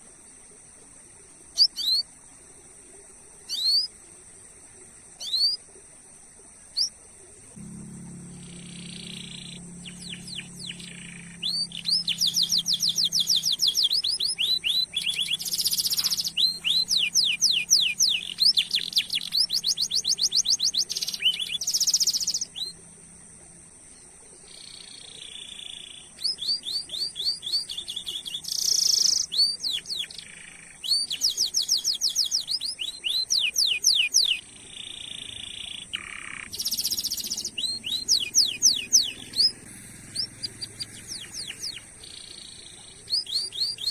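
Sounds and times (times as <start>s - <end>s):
thin high whine: 7.5s - 13.7s
canary singing in fast trills: 7.8s - 23.2s, 24.1s - 43.9s.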